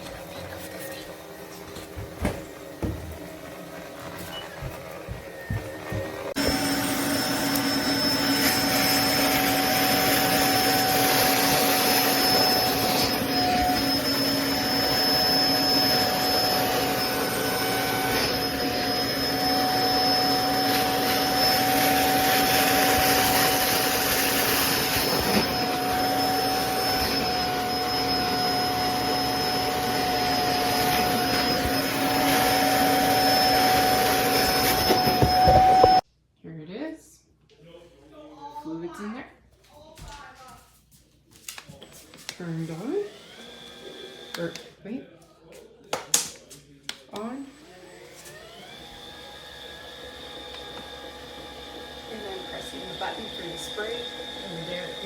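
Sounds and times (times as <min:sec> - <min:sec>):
spin mop motors humming: 0:00.0 - 0:36.0.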